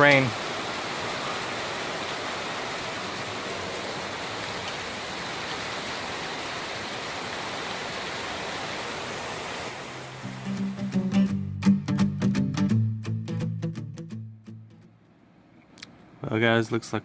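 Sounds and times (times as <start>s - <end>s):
heavy rain pouring: 0.0s - 11.3s
guitar music: 10.1s - 15.0s.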